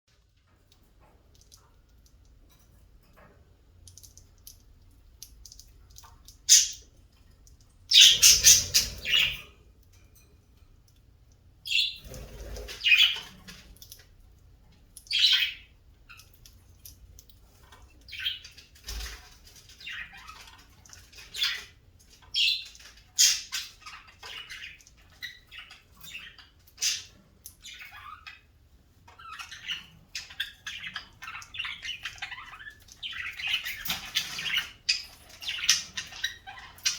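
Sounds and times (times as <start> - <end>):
birds squawking and chirping: 5.5 - 7.2, 7.8 - 9.7, 11.7 - 14.1, 15.0 - 17.0, 17.6 - 36.9.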